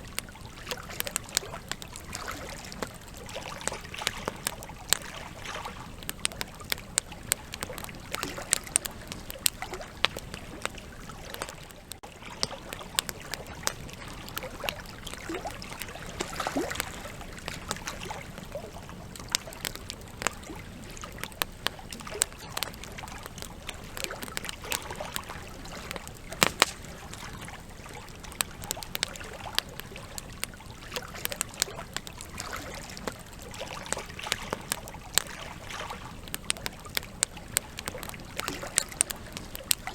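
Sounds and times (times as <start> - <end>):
campfire pops and snaps: 0.0 - 39.9
hiss of burning logs: 0.0 - 39.9.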